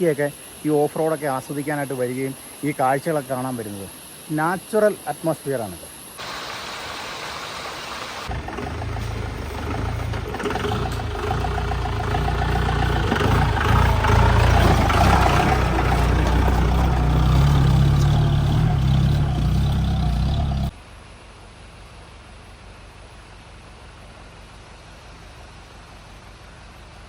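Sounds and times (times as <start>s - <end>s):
jeep engine running: 8.3s - 20.7s.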